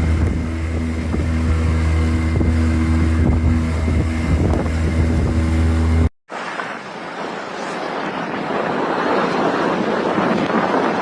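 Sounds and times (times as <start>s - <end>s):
motorboat engine running: 0.0s - 7.5s.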